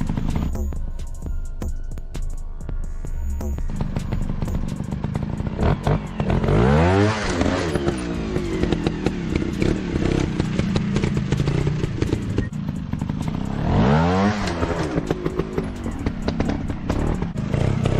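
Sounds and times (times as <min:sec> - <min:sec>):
motocross bike engine revving: 0:03.6 - 0:17.9.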